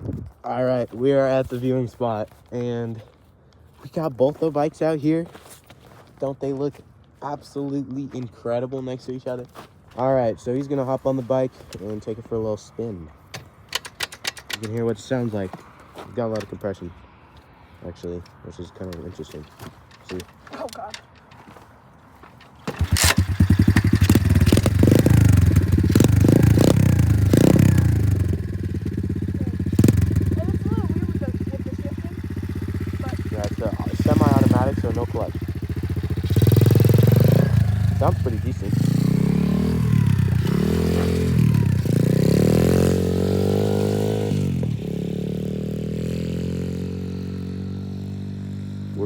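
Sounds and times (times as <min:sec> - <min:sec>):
dirt bike engine revving: 0:22.6 - 0:49.0.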